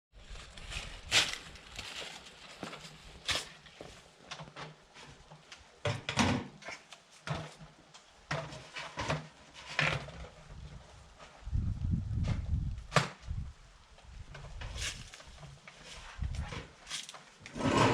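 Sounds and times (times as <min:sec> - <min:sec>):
rustling: 0:00.2 - 0:04.2, 0:14.1 - 0:17.9.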